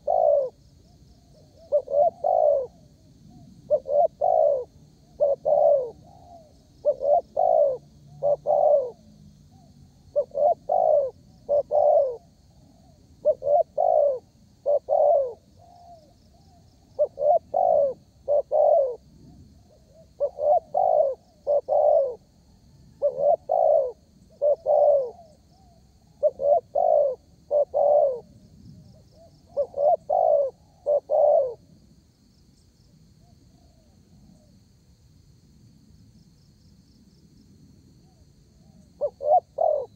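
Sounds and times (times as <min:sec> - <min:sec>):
dove cooing: 0:00.0 - 0:00.6, 0:01.2 - 0:31.7, 0:38.0 - 0:39.9.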